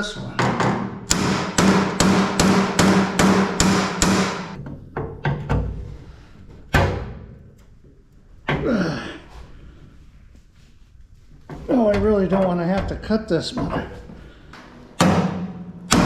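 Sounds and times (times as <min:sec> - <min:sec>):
hammer striking steel: 0:00.4 - 0:04.6, 0:14.6 - 0:16.0.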